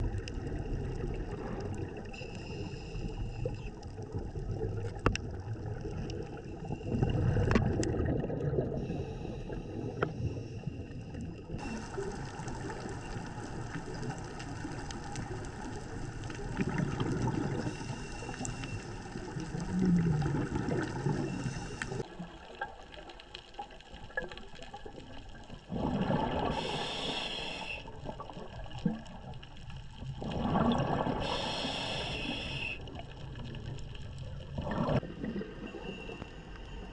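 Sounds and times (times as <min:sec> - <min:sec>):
bubbles gurgling underwater: 0:00.0 - 0:27.0, 0:27.9 - 0:31.9, 0:32.9 - 0:36.2
diver's regulator breathing: 0:02.0 - 0:03.9, 0:08.7 - 0:14.3, 0:17.2 - 0:22.0, 0:26.1 - 0:28.0, 0:31.0 - 0:33.0.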